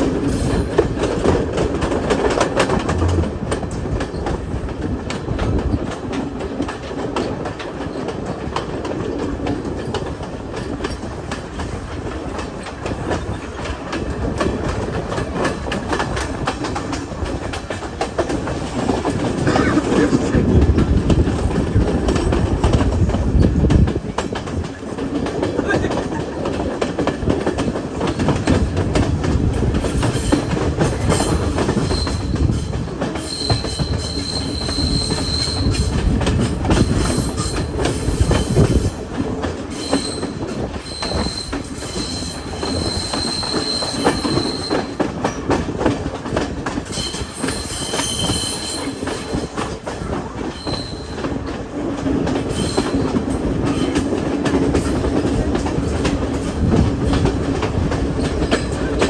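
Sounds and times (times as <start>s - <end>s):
train wheels rumbling and clattering: 0.0s - 59.0s
high-pitched wheel squeal: 33.2s - 35.8s, 39.8s - 44.9s.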